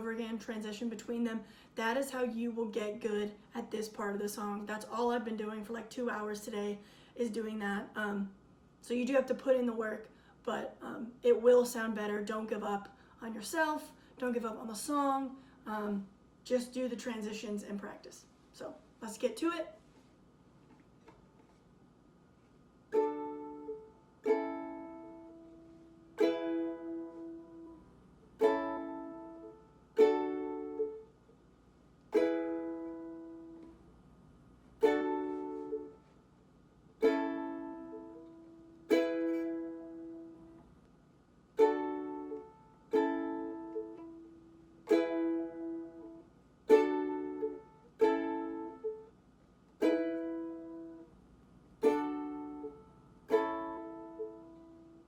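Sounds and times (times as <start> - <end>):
ukulele strumming chords: 22.9 - 31.1, 32.1 - 33.8, 34.8 - 36.1, 37.0 - 40.6, 41.6 - 49.1, 49.8 - 51.1, 51.8 - 55.0.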